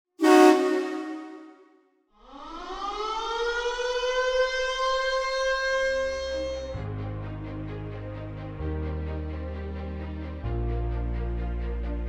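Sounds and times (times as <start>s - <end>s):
air-raid siren wailing: 0.2s - 1.6s.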